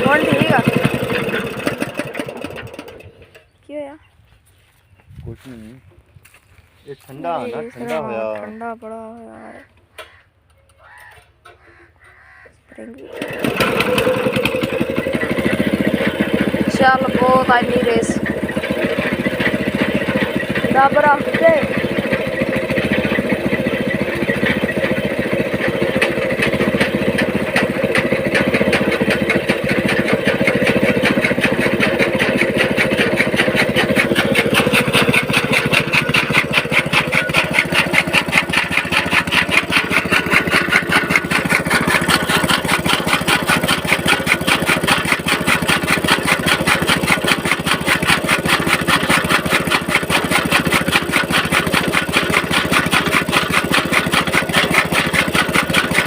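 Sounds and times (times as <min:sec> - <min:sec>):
chopping machine rhythmic clatter: 0:00.0 - 0:03.2, 0:13.0 - 0:56.0
small petrol engine running: 0:00.0 - 0:04.0, 0:06.3 - 0:56.0.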